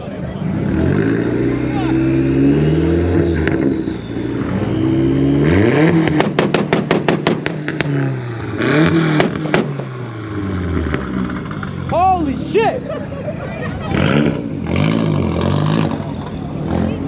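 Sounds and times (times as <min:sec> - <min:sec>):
engine revving hard: 0:00.3 - 0:11.5, 0:13.8 - 0:17.0
sharp exhaust pops: 0:05.9 - 0:10.0.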